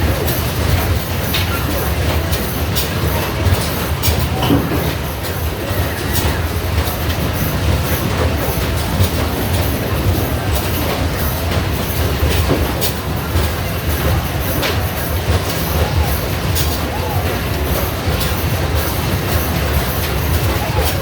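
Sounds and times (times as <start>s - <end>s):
low rumble of arcade noise: 0.0s - 21.0s.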